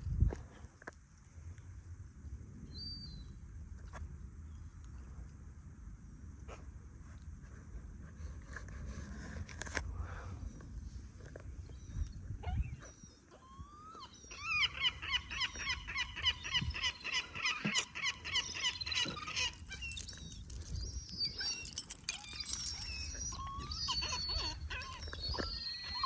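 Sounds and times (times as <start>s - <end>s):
faint high bird calls: 11.6s - 26.0s
loud ringing bird calls: 14.1s - 26.0s.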